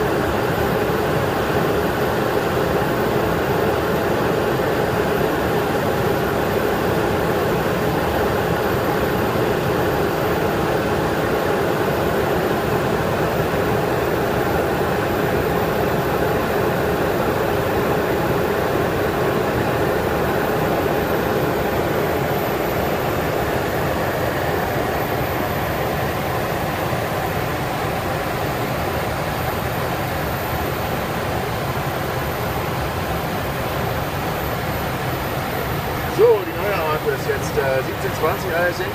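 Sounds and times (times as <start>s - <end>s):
aircraft engine noise: 0.0s - 38.9s.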